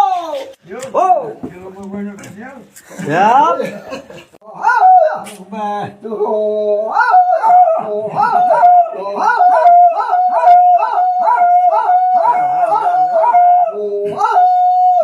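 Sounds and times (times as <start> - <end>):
dog howling: 4.6 - 5.3, 6.8 - 15.0.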